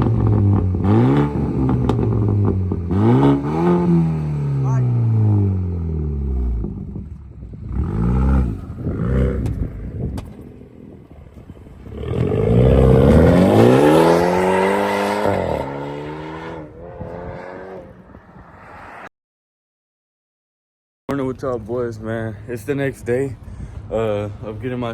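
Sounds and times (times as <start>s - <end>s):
car engine revving: 0.0s - 10.8s, 11.8s - 19.0s.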